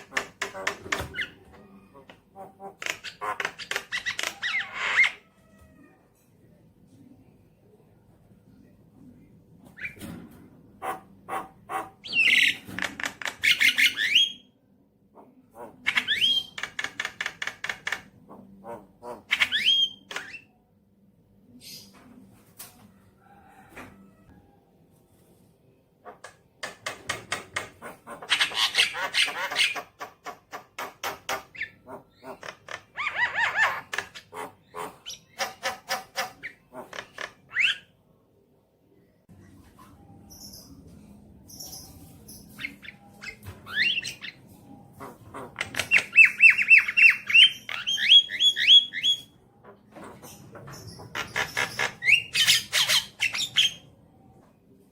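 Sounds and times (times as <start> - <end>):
myna singing clicks and squeaks: 0.0 - 5.2, 15.6 - 20.5, 39.8 - 54.5.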